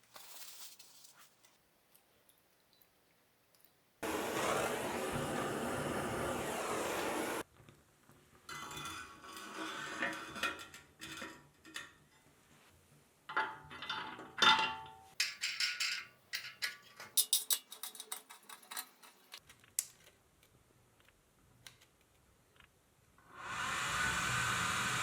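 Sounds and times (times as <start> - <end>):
metal parts clinking and clattering: 13.4 - 20.1.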